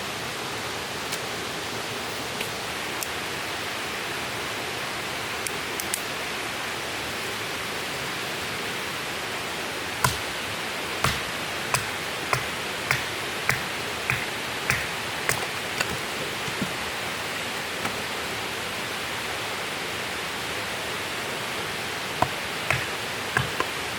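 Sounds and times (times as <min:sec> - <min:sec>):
steady rushing hiss: 0:00.3 - 0:23.9
sharp knocks: 0:10.0 - 0:10.4, 0:11.0 - 0:16.9, 0:22.2 - 0:23.8.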